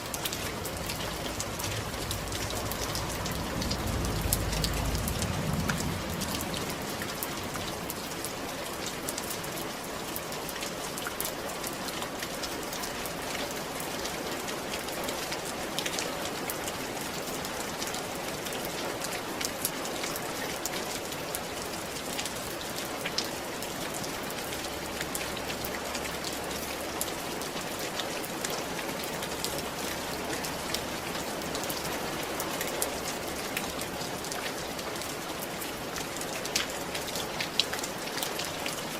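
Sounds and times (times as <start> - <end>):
raindrops ticking: 0.0 - 20.7
rain falling on a roof: 0.0 - 38.9.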